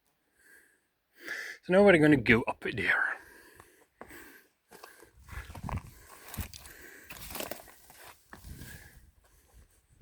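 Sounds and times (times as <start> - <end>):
footsteps through brush: 4.7 - 9.8
bushes rustling: 4.8 - 8.9.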